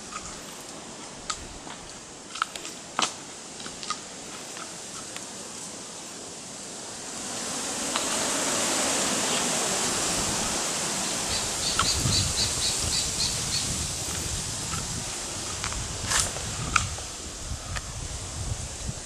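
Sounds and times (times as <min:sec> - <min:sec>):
wind through foliage: 0:00.0 - 0:19.0
wind rumbling on microphone: 0:11.2 - 0:19.0.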